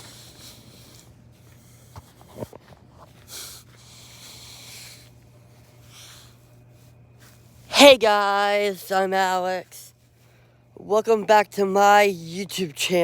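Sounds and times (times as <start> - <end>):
person breathing and sniffing: 0.0 - 7.7.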